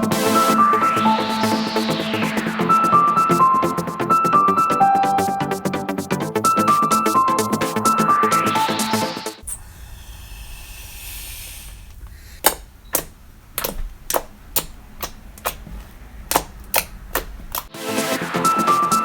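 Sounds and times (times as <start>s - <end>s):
faint hiss: 9.4s - 14.2s
slime popping clicks: 12.4s - 15.6s.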